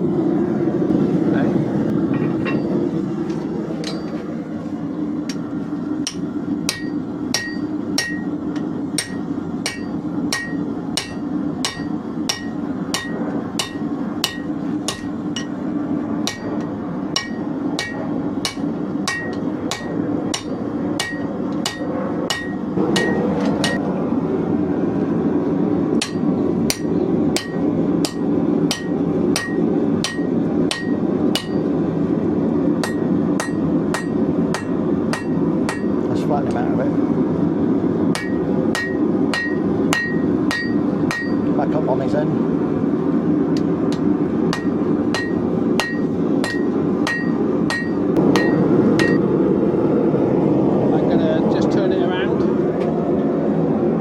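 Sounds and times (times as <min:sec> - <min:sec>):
low drone: 0:00.0 - 0:54.0
hammer striking steel on anvil: 0:02.2 - 0:02.8, 0:03.8 - 0:04.2, 0:05.3 - 0:15.6, 0:16.2 - 0:23.8, 0:26.0 - 0:31.7, 0:32.8 - 0:36.1, 0:38.1 - 0:41.5, 0:43.6 - 0:49.2.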